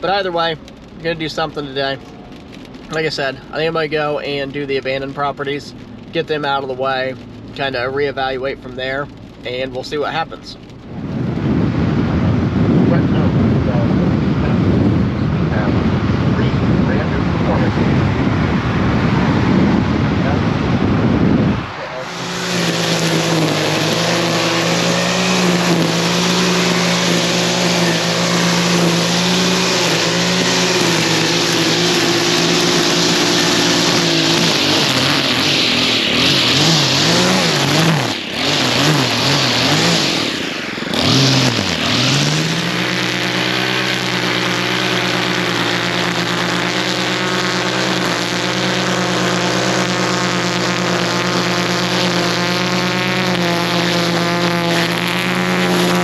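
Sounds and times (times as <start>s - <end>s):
vehicle engine: 0.0s - 56.0s
tyres hissing on wet road: 21.8s - 56.0s.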